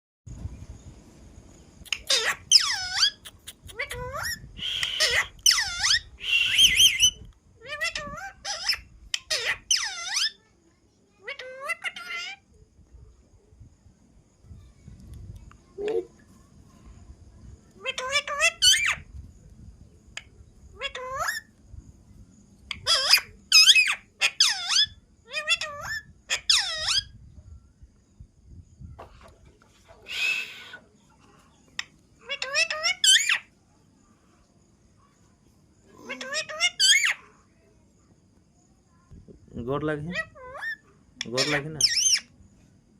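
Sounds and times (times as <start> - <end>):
parrot short chirps: 1.9 - 7.2
parrot whistle-like calls: 1.9 - 7.2, 30.1 - 30.8
parrot warble: 1.9 - 10.4, 17.8 - 19.1, 20.2 - 21.5, 22.7 - 27.2, 31.7 - 33.5, 35.9 - 37.2, 40.1 - 42.3.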